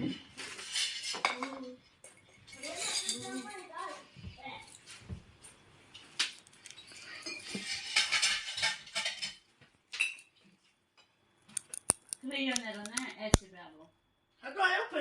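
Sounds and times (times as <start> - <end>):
small objects clinking and rustling: 0.3 - 3.7, 6.2 - 9.4
sharp click: 11.5 - 13.5.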